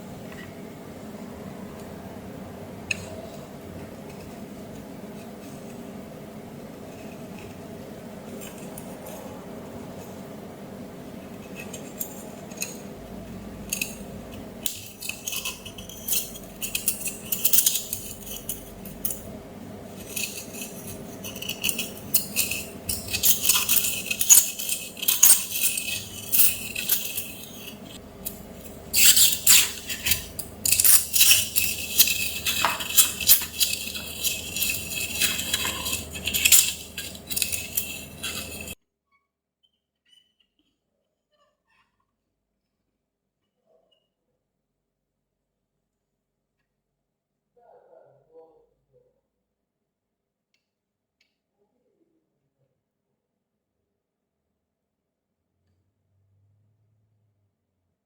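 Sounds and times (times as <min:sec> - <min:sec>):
faint steady hum: 0:00.0 - 0:38.8
small metal objects clinking: 0:13.6 - 0:19.3, 0:19.9 - 0:38.8.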